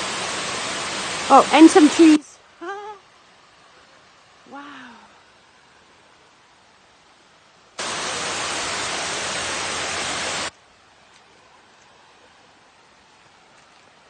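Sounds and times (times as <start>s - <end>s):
waterfall rushing: 0.0s - 2.2s, 7.8s - 10.5s.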